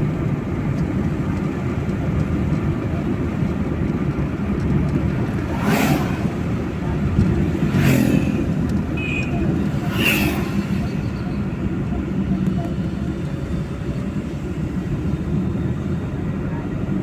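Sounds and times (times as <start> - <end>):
vehicle road rumble: 0.0 - 17.0
short hissing swishes: 9.6 - 11.4.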